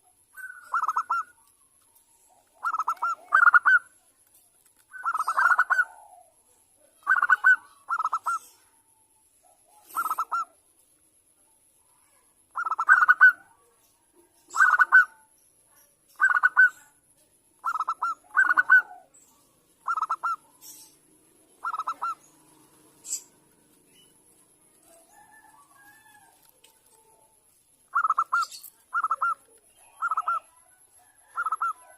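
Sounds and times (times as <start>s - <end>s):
dove cooing: 0.0s - 1.6s, 2.2s - 3.9s, 4.9s - 8.7s, 9.7s - 10.6s, 12.5s - 13.6s, 14.5s - 15.3s, 16.2s - 16.8s, 17.6s - 19.2s, 19.8s - 31.9s.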